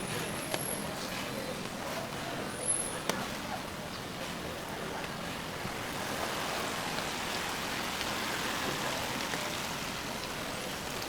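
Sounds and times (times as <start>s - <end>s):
steady rain hiss: 3.4s - 11.0s
raindrops ticking: 5.0s - 11.0s.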